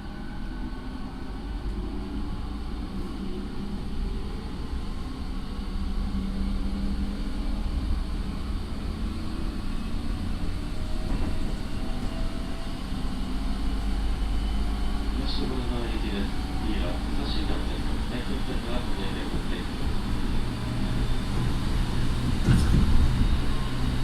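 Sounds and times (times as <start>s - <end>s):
electric train rumbling: 0.0s - 24.0s
train motor and inverter tones: 0.0s - 24.0s.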